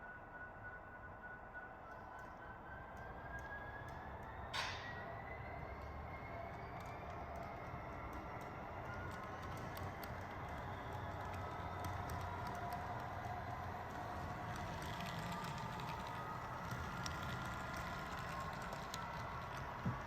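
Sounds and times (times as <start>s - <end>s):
model train whine and hum: 0.0s - 20.0s
wheels clicking over rail joints: 4.2s - 20.0s.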